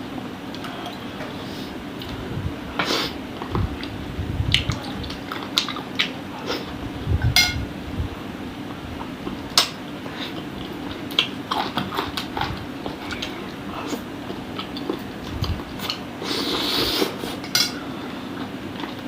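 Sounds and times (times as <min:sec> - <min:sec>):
steady low hum: 0:00.0 - 0:19.0
wet chewing and sucking: 0:10.0 - 0:17.4.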